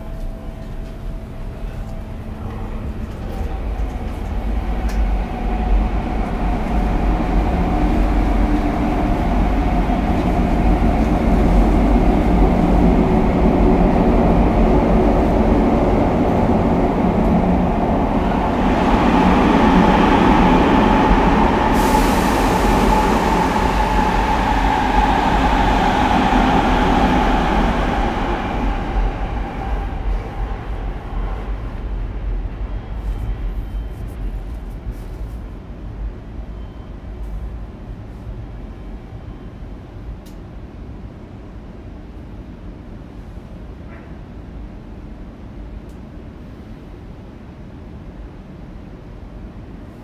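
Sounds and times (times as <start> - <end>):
train motors humming: 0.0 - 32.8
train wheels rumbling on rail: 0.0 - 50.0
high hiss: 21.4 - 27.8.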